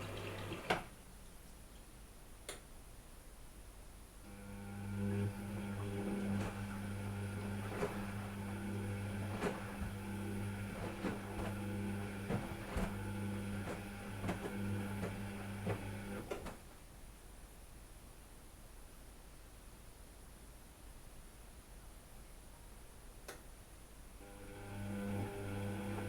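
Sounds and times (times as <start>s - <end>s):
machine hum: 4.3s - 16.4s, 24.2s - 26.0s.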